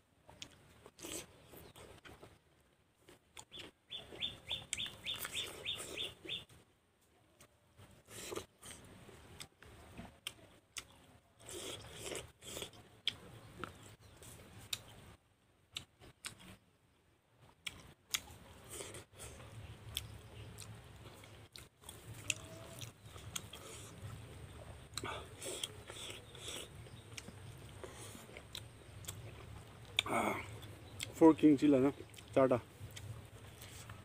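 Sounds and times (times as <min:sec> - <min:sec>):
person chewing and biting food: 0:00.4 - 0:02.3, 0:03.0 - 0:06.4, 0:10.2 - 0:13.8, 0:17.6 - 0:24.2, 0:24.9 - 0:31.2.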